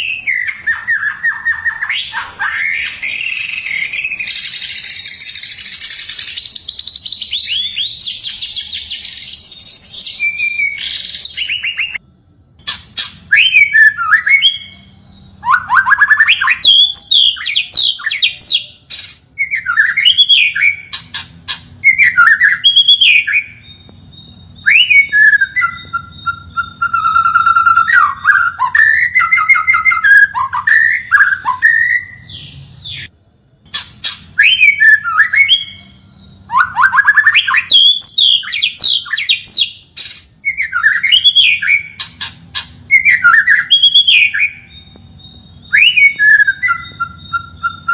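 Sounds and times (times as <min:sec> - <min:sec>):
bird whistled phrases: 0:00.0 - 0:12.0, 0:12.7 - 0:33.1, 0:33.7 - 0:44.9, 0:45.5 - 0:47.9
bird chattering trill: 0:12.6 - 0:33.1, 0:33.7 - 0:47.9.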